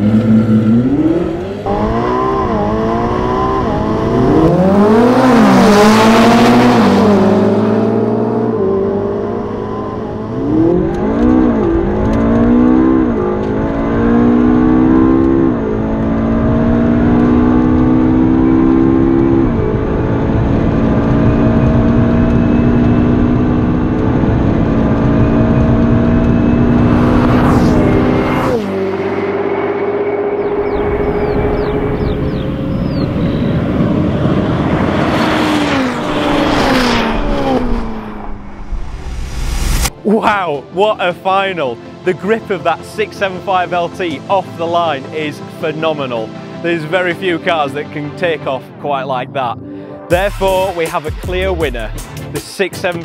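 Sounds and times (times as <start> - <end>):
car engines accelerating: 0.0 - 53.0
whoosh of car rushing past: 26.0 - 29.6, 30.4 - 40.0.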